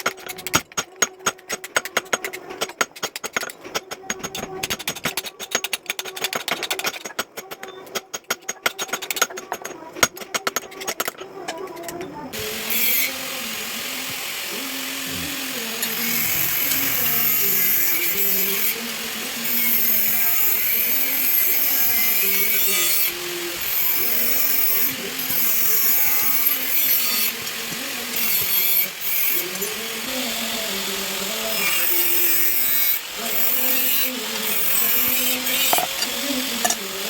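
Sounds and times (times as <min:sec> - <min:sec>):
power grinder grinding steel: 0:12.3 - 0:37.0.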